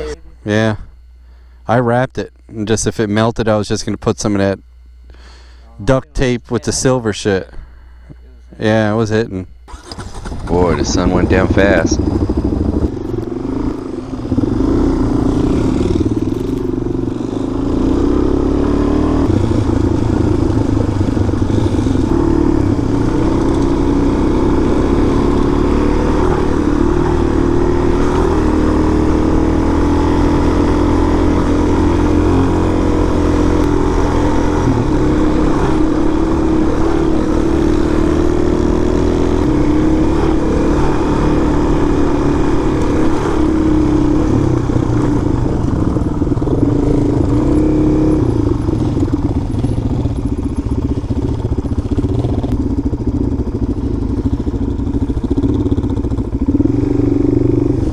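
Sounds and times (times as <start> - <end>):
motorcycle engine running: 0.0 - 1.2, 9.5 - 57.9.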